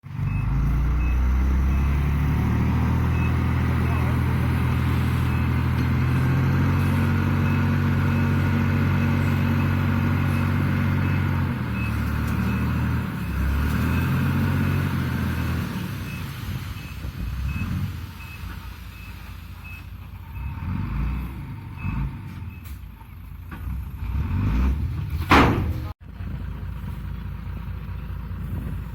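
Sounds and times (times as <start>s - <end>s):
truck engine running: 0.0s - 20.8s, 21.4s - 28.9s
reversing alarm beeping: 0.2s - 14.9s.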